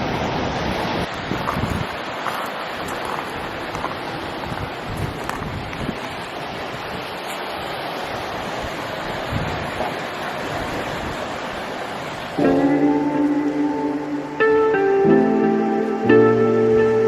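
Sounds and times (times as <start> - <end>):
wind on microphone: 0.0 - 7.1, 8.1 - 13.2
ocean surf washing ashore: 0.0 - 17.0
music: 12.4 - 17.0.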